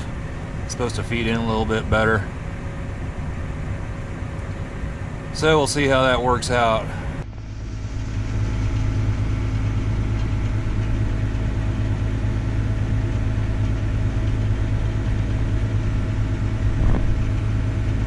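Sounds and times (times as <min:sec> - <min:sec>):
combine harvester engine drone: 0:00.0 - 0:18.0.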